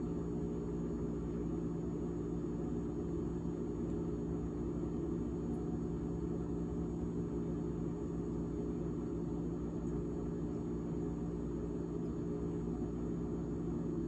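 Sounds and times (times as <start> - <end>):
refrigerator fan humming: 0.0 - 14.0.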